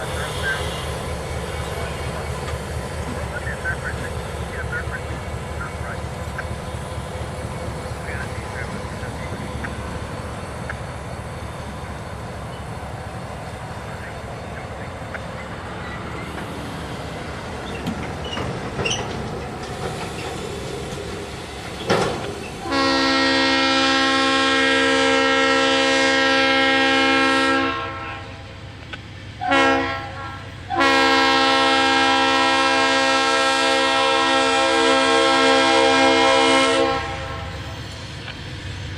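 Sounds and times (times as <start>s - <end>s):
train rumbling: 0.0s - 38.9s
locomotive air horn blasts: 22.6s - 28.4s, 29.4s - 37.6s.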